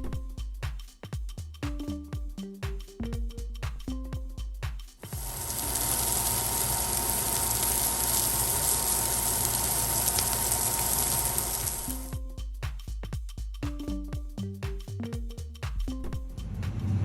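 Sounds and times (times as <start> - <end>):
dense hissing noise: 5.0 - 12.2.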